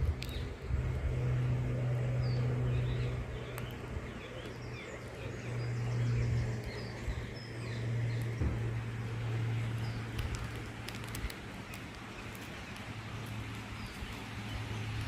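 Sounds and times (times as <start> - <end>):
steady low hum: 0.0 - 15.0
birds chirping and singing: 2.0 - 10.5.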